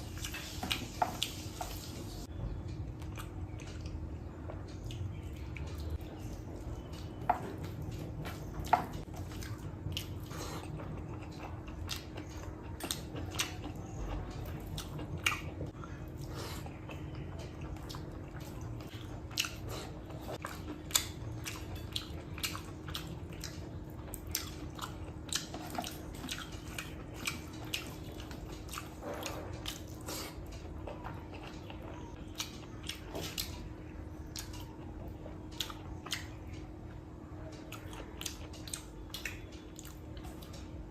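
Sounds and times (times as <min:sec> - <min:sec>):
wet chewing and mouth smacks: 0:07.0 - 0:33.7.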